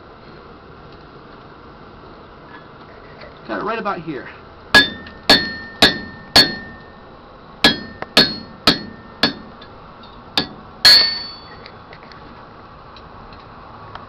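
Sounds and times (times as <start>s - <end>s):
hammer striking chisel on metal: 4.7s - 7.0s, 7.6s - 9.7s, 10.4s - 11.6s.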